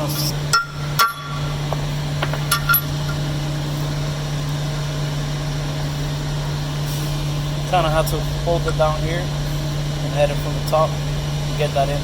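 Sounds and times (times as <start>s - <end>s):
low machine hum: 0.0s - 12.0s
metal parts clinking: 2.4s - 3.2s.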